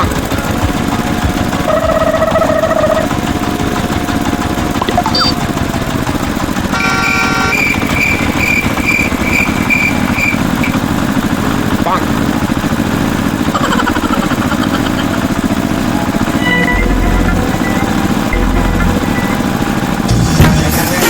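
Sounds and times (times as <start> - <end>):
motor rumble: 0.0 - 21.0
short high beeps: 4.8 - 5.4, 6.8 - 10.8.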